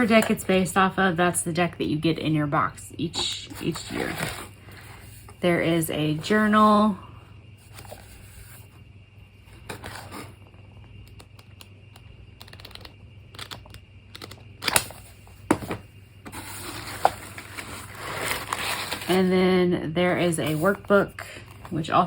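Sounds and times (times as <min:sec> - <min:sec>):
hands handling items: 0:03.2 - 0:05.4, 0:14.2 - 0:19.2.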